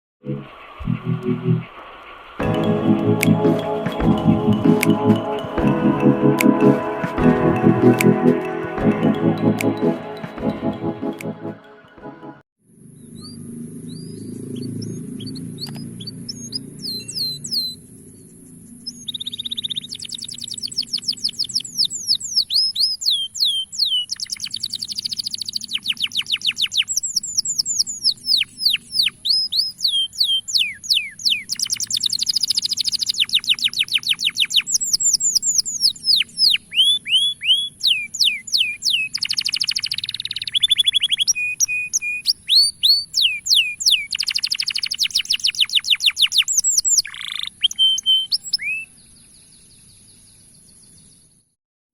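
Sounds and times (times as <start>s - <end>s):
canary singing trills: 12.9s - 51.2s.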